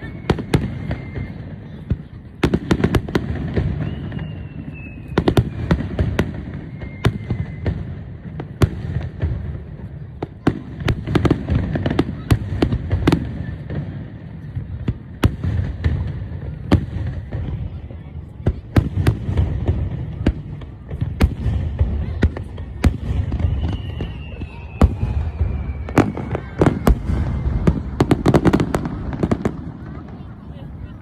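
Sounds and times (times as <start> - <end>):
faint descending whistle: 0.0 - 1.6, 3.7 - 5.8, 6.5 - 8.2, 23.2 - 27.7
distant fireworks rumble: 0.0 - 31.0
fireworks bangs and cracks: 0.0 - 31.0.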